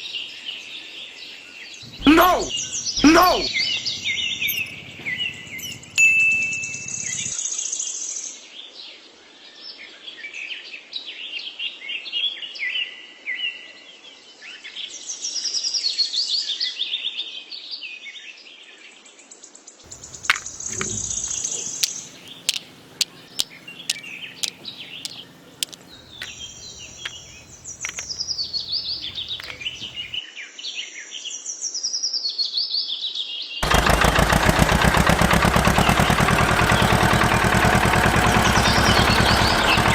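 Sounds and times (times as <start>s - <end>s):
small birds chirping: 1.8s - 7.3s, 19.9s - 30.2s, 35.2s - 39.9s
loud rapid mechanical rattle: 1.9s - 7.3s, 19.9s - 30.2s, 33.6s - 39.9s
sharp clicks: 19.9s - 30.2s.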